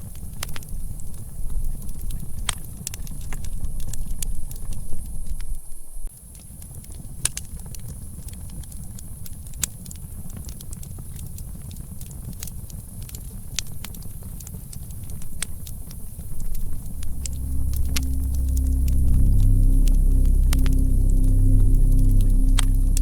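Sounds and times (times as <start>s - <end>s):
wind rumble: 15.0s - 23.0s
low droning tone: 15.2s - 23.0s.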